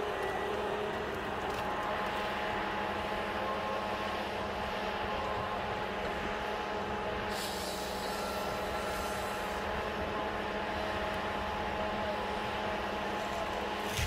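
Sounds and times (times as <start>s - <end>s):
heavy diesel machine running: 0.0s - 14.0s
hiss: 7.2s - 9.8s.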